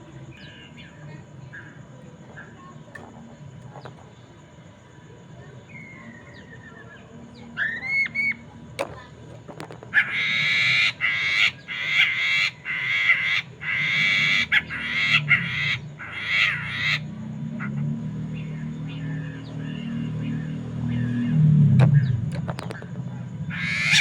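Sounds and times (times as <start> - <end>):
bird raspy chattering: 5.7 - 8.6, 9.9 - 20.4, 22.6 - 24.0.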